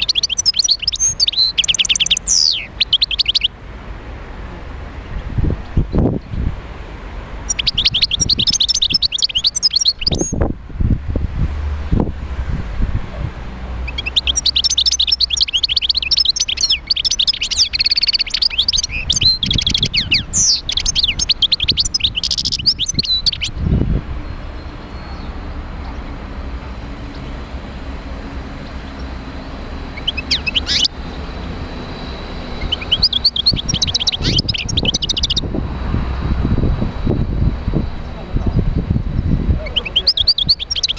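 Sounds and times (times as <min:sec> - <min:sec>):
goldfinch twittering song: 0:00.0 - 0:03.5, 0:07.4 - 0:10.4, 0:13.8 - 0:26.2, 0:28.6 - 0:31.0, 0:31.7 - 0:35.5, 0:38.0 - 0:40.9.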